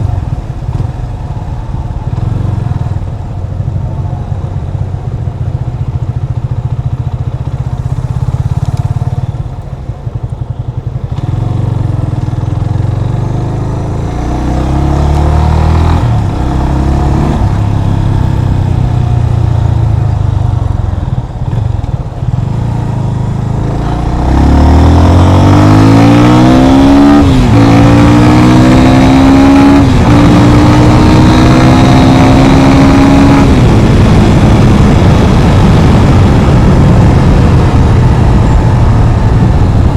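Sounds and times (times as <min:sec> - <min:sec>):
motorcycle engine revving: 0:00.0 - 0:39.9
wind noise on microphone: 0:13.9 - 0:39.9.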